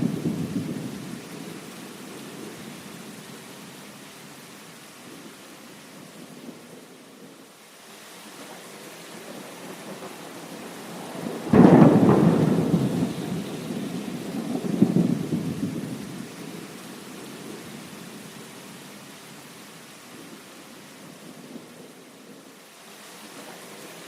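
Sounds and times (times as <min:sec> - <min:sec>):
thunder rumbling: 0:00.0 - 0:02.8, 0:09.1 - 0:17.7
steady rain: 0:00.0 - 0:24.0.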